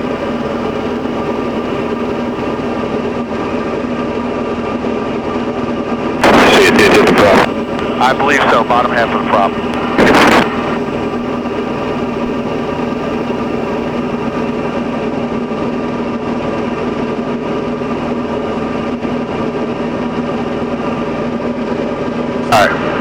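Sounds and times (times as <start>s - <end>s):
aircraft engine and propeller drone: 0.0s - 4.2s, 6.2s - 16.2s.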